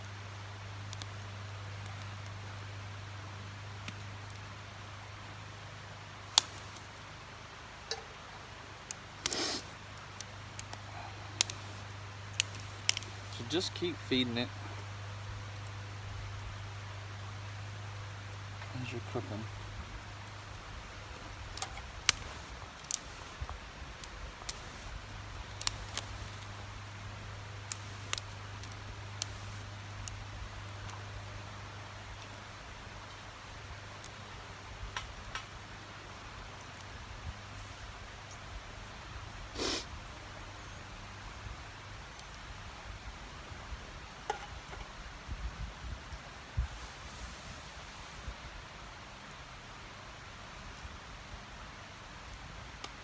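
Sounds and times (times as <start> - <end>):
steady low hum: 0.0 - 46.7
twig fire crackling: 0.0 - 53.0
scraping rustle: 46.6 - 48.4.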